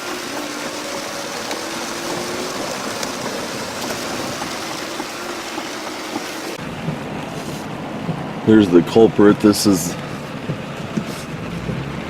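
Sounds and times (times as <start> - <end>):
rain and running water: 0.0 - 12.0.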